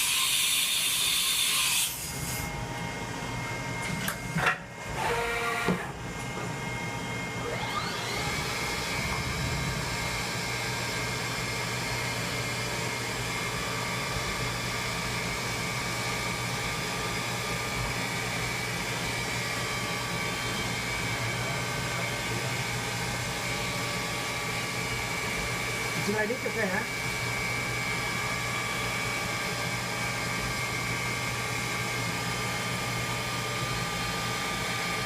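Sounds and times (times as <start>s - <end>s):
mill spindle whining: 0.0s - 35.0s
clicks and short whirs: 3.8s - 6.4s, 7.4s - 10.6s.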